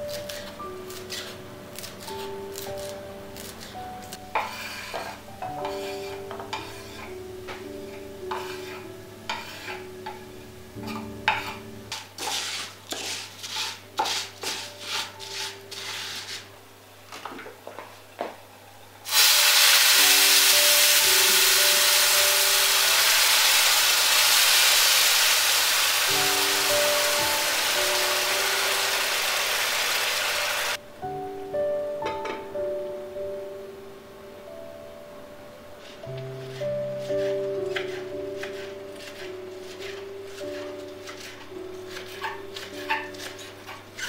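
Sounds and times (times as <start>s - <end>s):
utensils stirring in a pan: 0.0s - 16.5s, 19.1s - 30.8s, 35.8s - 44.0s
soft background music: 0.0s - 25.1s, 25.8s - 44.0s
food sizzling in hot oil: 19.1s - 30.8s.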